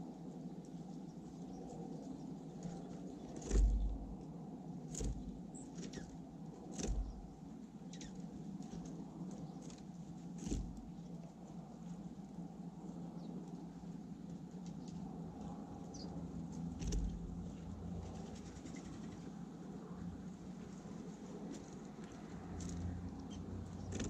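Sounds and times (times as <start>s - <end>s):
steady low rumble: 0.0s - 24.0s
birds knocking and tapping at feeder: 4.9s - 7.4s.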